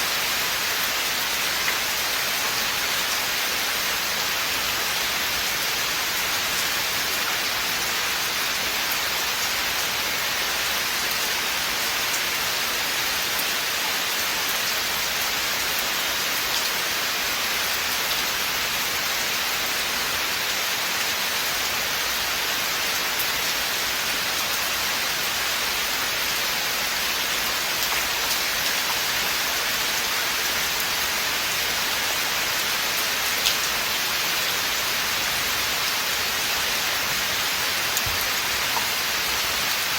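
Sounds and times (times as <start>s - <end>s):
rain hissing: 22.1s - 39.9s.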